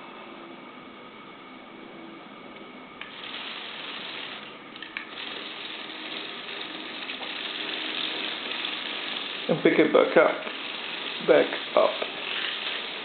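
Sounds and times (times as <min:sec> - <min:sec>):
small electric motors whining: 0:03.0 - 0:13.0.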